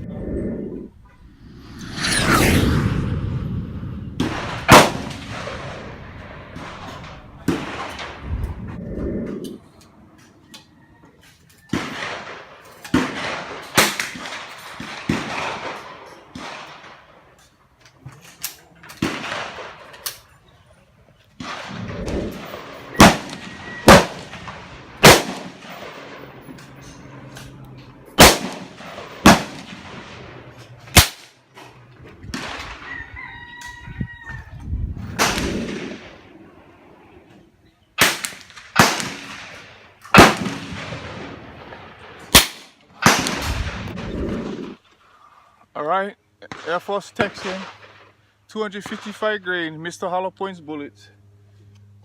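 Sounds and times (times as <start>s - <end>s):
gunshots echoing: 4.2s - 8.2s, 11.7s - 17.2s, 19.0s - 19.9s, 21.4s - 26.5s, 28.2s - 31.4s, 38.0s - 44.8s.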